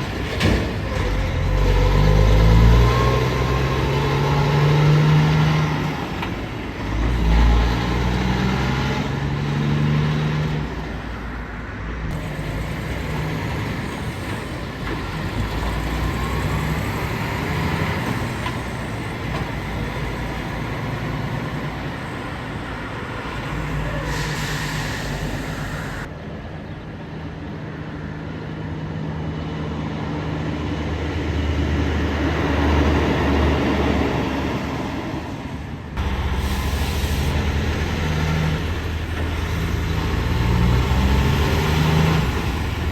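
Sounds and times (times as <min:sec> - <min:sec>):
heavy vehicles passing: 0:00.0 - 0:42.9.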